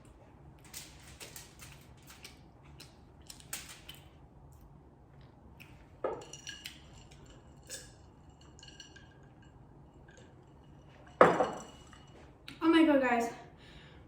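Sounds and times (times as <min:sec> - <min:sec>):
tableware clinking: 0:06.0 - 0:12.3.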